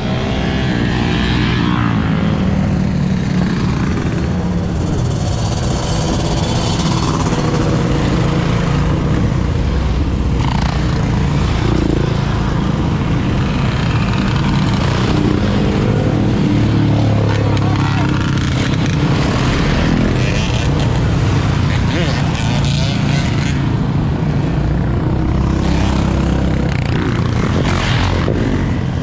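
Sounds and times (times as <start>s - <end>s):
motorcycle engines running: 0.0s - 29.0s
people's voices: 17.0s - 23.7s.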